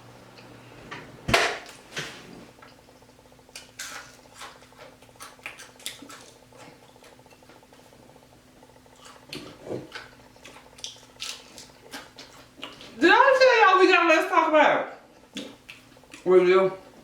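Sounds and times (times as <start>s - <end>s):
crunchy biting and chewing: 3.5s - 7.9s, 8.6s - 13.0s.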